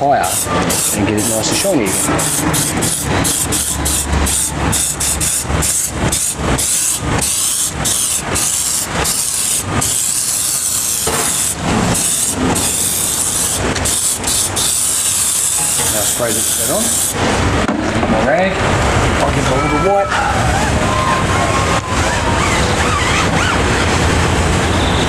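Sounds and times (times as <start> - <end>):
aerosol spray hissing in bursts: 0.2 - 17.2.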